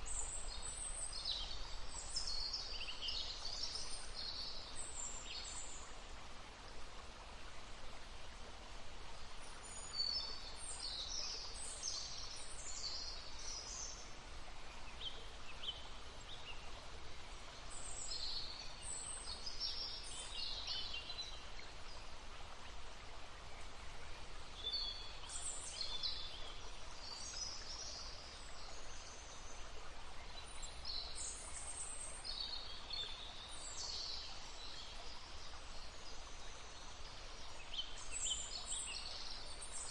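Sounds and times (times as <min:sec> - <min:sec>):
babbling stream: 0:00.0 - 0:39.9
songbirds singing: 0:09.1 - 0:39.9.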